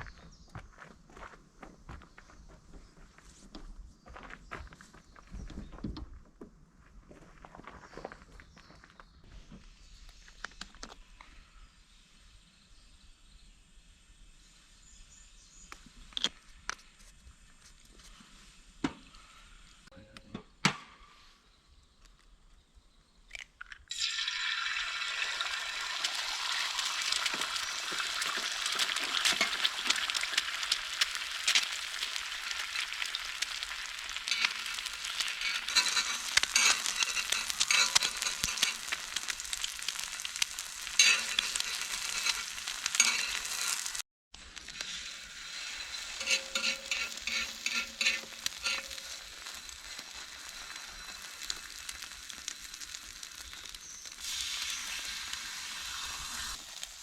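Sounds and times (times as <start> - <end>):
food sizzling in a pan: 23.9 - 57.0.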